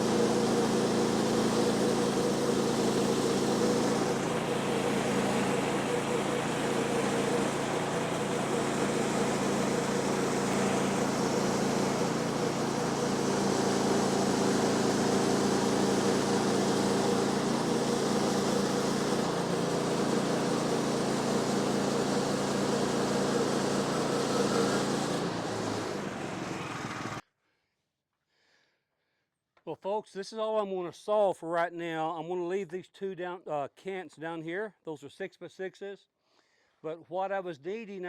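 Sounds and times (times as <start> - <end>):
sawmill engine running: 0.0 - 27.2.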